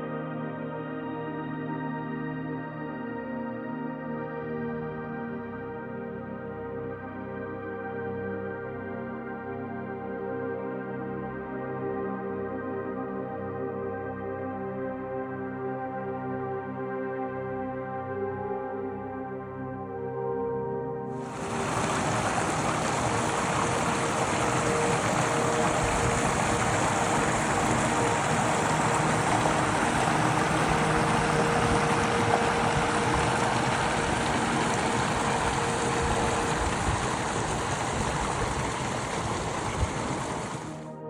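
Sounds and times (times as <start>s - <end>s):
steady rushing noise: 21.2s - 40.8s
faint steady hum: 21.2s - 40.9s.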